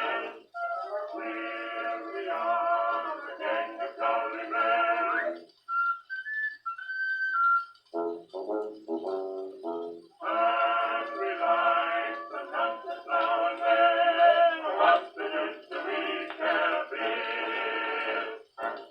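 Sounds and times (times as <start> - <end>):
male vocal quartet singing: 0.0 - 5.4, 10.2 - 18.9
orchestra playing: 7.8 - 13.5.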